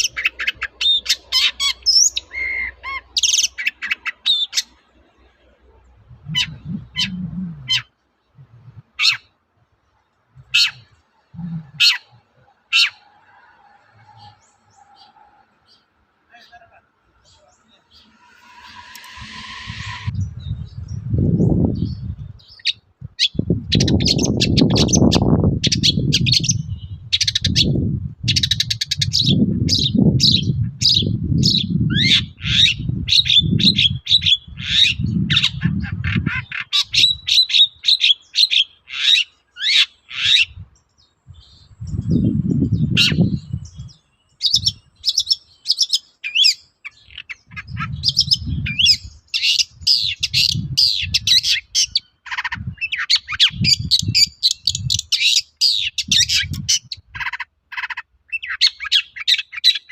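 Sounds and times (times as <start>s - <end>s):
shrike singing: 16.3s - 22.1s
low rumble: 17.9s - 22.4s.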